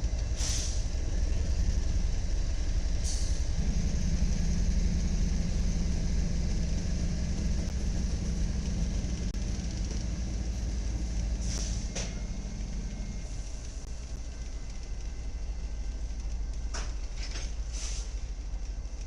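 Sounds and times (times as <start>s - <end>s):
train diesel engine rumbling: 0.0s - 19.0s
short air hisses: 0.4s - 0.9s, 11.4s - 11.9s, 17.7s - 18.2s.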